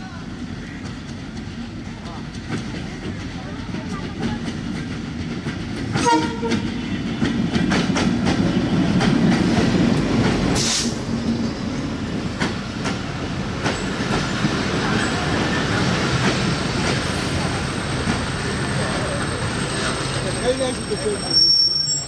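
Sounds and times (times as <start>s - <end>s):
wheels clacking over rail joints: 0.8s - 21.2s
train horn blast: 6.0s - 6.8s
sharp hiss: 10.5s - 11.1s.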